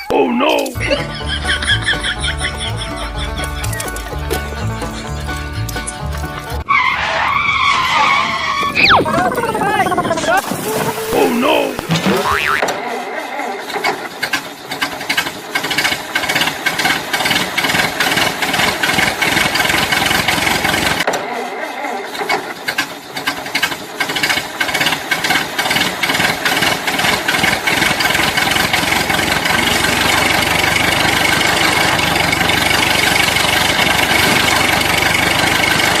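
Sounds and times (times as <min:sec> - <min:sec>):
engine running with clicking rattle: 0:01.2 - 0:06.7, 0:13.6 - 0:21.2, 0:22.0 - 0:36.0.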